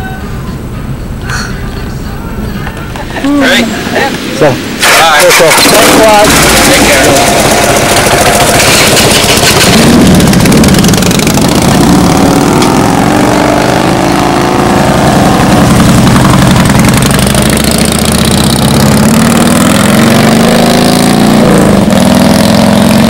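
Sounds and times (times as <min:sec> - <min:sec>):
motorcycle engine pulling away: 0:04.8 - 0:23.0.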